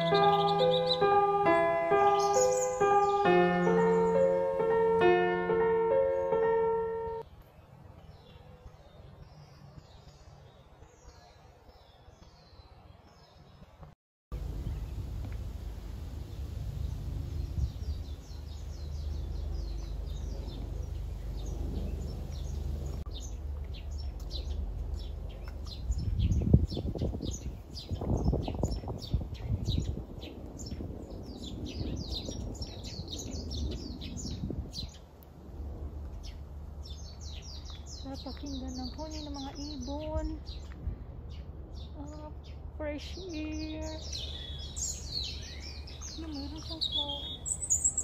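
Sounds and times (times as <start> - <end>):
small birds chirping: 0.0 - 7.2, 14.4 - 35.2, 36.1 - 48.0
steady low rumble: 14.3 - 48.0.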